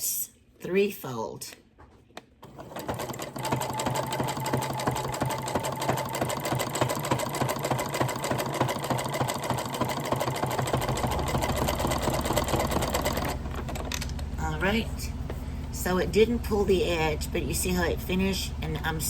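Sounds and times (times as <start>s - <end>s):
sewing machine running: 2.4s - 14.2s.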